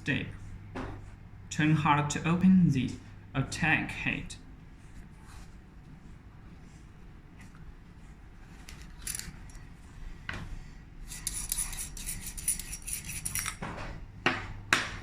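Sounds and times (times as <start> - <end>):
metal threads rasping: 11.0 - 13.6.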